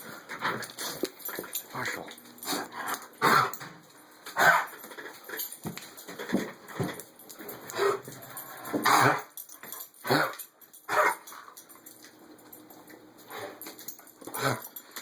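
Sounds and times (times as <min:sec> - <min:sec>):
dog coughing: 0:03.2 - 0:03.6.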